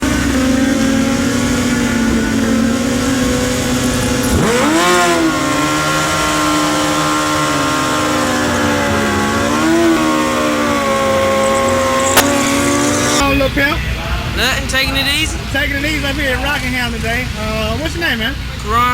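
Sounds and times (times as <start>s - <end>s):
motorcycle engine revving: 0.0s - 13.3s.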